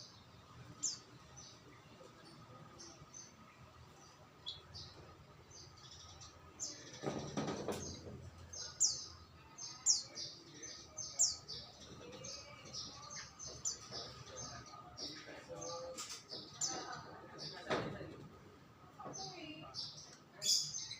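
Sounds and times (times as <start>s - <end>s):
small songbirds chirping: 0.0s - 18.0s.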